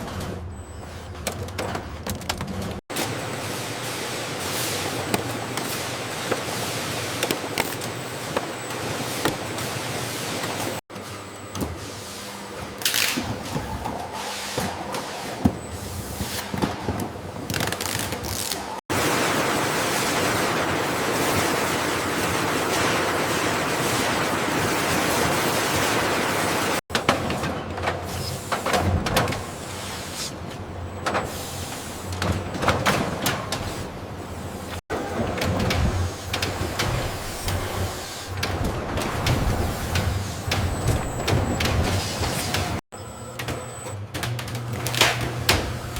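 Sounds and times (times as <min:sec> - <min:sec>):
machinery clattering and clicking: 0:30.5 - 0:45.9.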